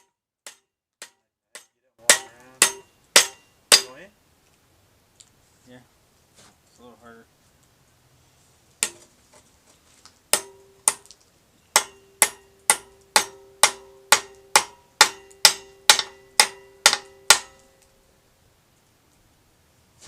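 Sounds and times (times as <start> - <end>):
hammer striking metal: 0.0 - 4.0, 8.8 - 9.1, 10.3 - 11.1, 11.7 - 17.9.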